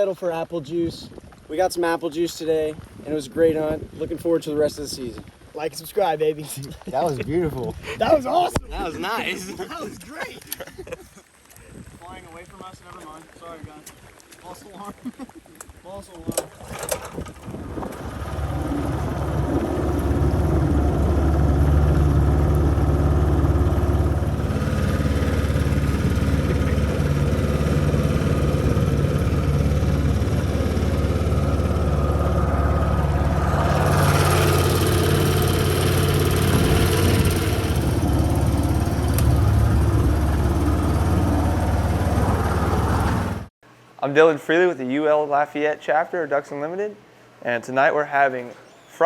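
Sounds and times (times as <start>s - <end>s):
boat motor running: 16.4s - 43.5s.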